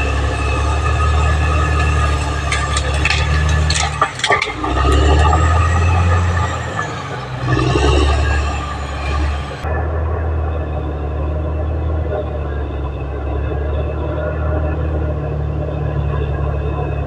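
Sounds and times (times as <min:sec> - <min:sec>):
sharp knocks and clatter: 0:00.0 - 0:09.6
bulldozer diesel engine under load: 0:00.0 - 0:17.0.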